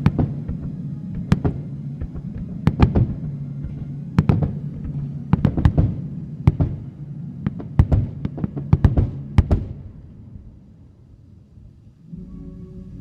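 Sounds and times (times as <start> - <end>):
fireworks bangs: 0.0 - 10.0
low musical drone: 0.0 - 13.0.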